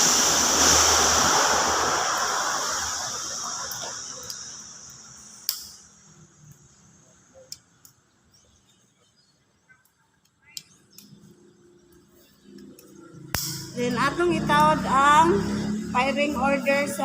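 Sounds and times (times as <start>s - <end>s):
hiss: 0.0s - 6.9s.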